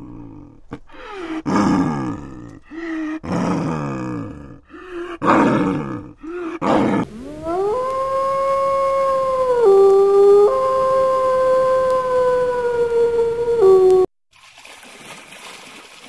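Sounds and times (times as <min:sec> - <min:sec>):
short growls: 0:05.2 - 0:09.7
snow leopards yowling: 0:06.6 - 0:14.1
wolf howling: 0:06.6 - 0:14.1.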